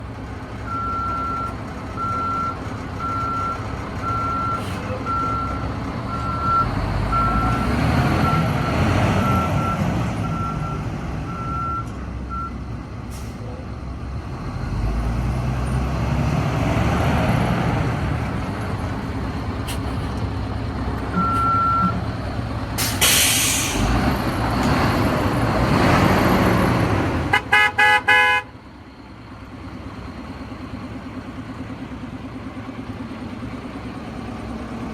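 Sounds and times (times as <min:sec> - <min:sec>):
diesel truck engine revving: 0:00.2 - 0:28.4
air hiss: 0:22.8 - 0:23.9
truck horn toots: 0:27.3 - 0:28.5.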